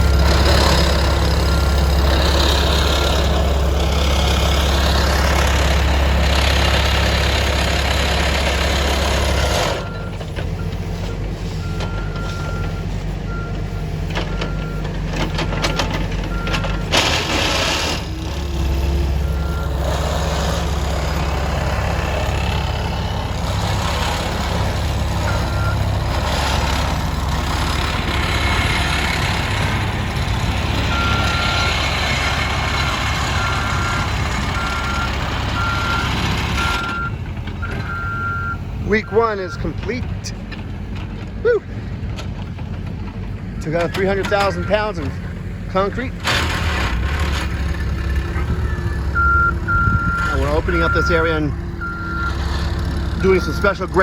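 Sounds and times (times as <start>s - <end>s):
construction machine engine: 0.0s - 54.0s
backup alarm beeping: 33.3s - 39.7s, 44.2s - 45.1s, 48.6s - 52.4s.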